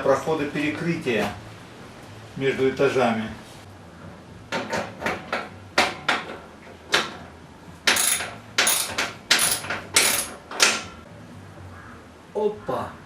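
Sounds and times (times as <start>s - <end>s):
metal pipe fittings clanking: 7.9s - 10.4s
sharp metallic knocks: 7.9s - 10.8s.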